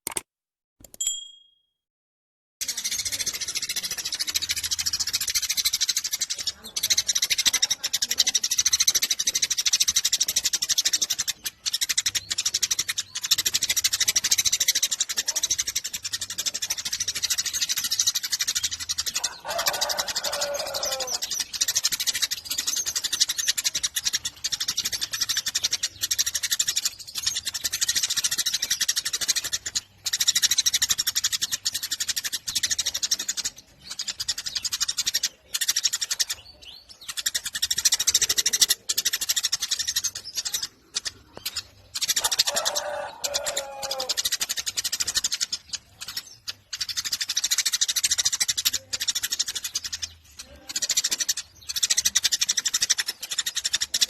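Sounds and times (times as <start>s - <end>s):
sparrow chirping rapidly: 2.6s - 54.0s.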